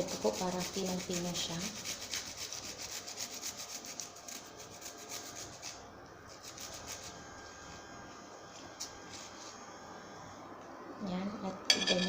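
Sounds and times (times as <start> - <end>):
garlic rasping on a grater: 0.0 - 7.3.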